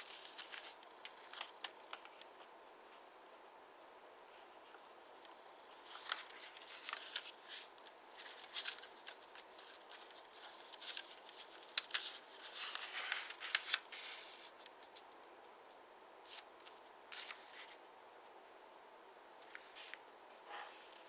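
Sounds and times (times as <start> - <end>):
paper rustling and crackling: 0.0 - 3.0, 5.7 - 15.2, 16.2 - 17.8.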